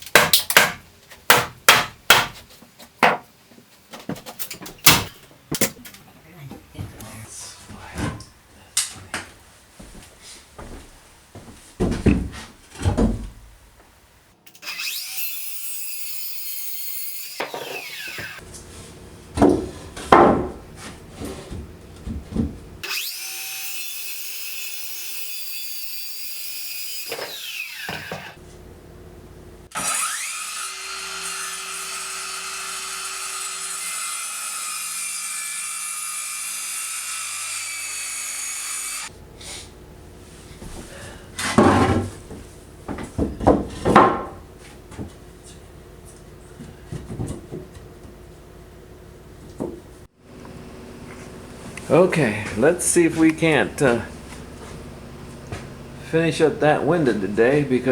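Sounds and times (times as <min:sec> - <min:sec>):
power saw cutting wood: 0:14.5 - 0:18.4, 0:22.8 - 0:28.4, 0:29.7 - 0:39.1, 0:51.8 - 0:57.9
boards knocking and clattering: 0:19.4 - 0:20.6, 0:41.4 - 0:45.2.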